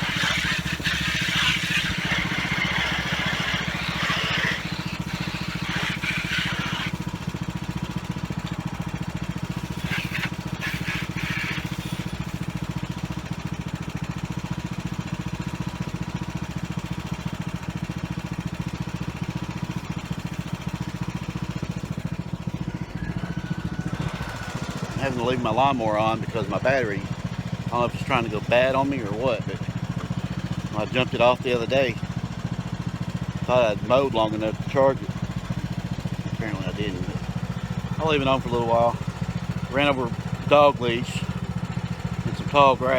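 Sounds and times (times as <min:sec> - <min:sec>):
short noisy bursts: 0:00.0 - 0:07.4, 0:09.4 - 0:12.7
lawn mower engine idling: 0:00.0 - 0:42.9.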